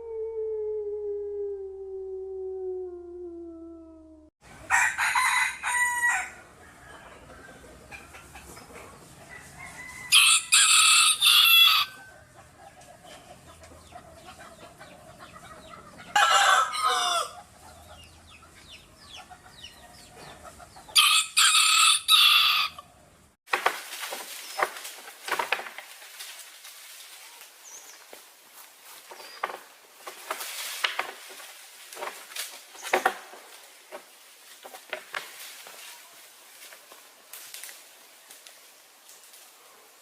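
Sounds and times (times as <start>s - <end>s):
rooster crowing: 4.6s - 7.7s, 9.2s - 12.4s, 16.0s - 17.5s, 21.0s - 22.9s
soft clucking: 7.0s - 9.2s.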